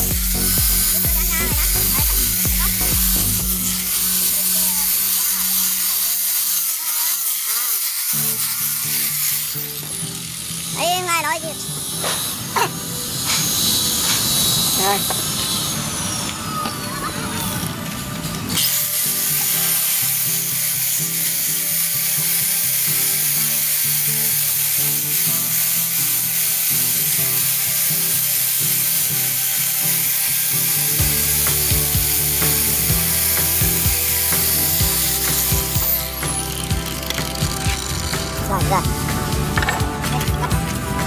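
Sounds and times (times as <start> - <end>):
angle grinder sanding wood: 0.0 - 41.0.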